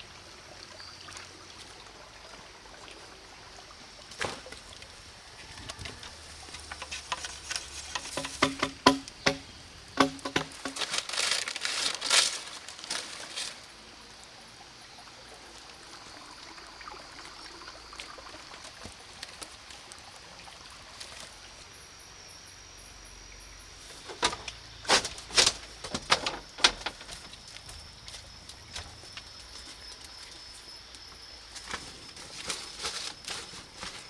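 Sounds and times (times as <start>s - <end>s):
quiet outdoor ambience: 0.0s - 34.0s
high insect tone: 3.0s - 34.0s
sharp knocks and clatter: 6.4s - 11.1s, 24.0s - 27.3s.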